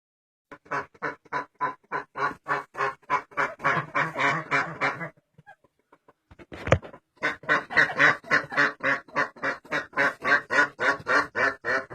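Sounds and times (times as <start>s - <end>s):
duck quacking harshly: 0.5s - 5.6s, 7.2s - 11.9s.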